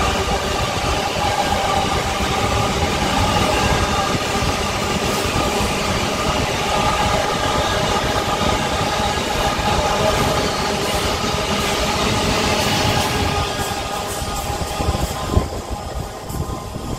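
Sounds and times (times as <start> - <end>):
freight train rumbling: 0.0 - 16.9.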